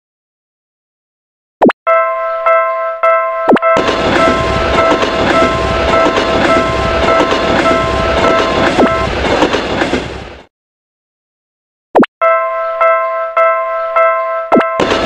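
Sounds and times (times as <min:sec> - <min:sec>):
crossing warning bell ringing: 0:01.9 - 0:09.2, 0:12.2 - 0:15.0
train rumble and clatter: 0:03.6 - 0:10.5, 0:14.7 - 0:15.0.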